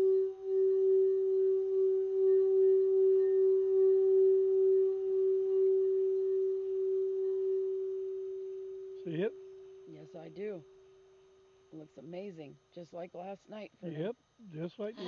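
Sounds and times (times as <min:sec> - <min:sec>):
singing bowl ringing: 0:00.0 - 0:11.1.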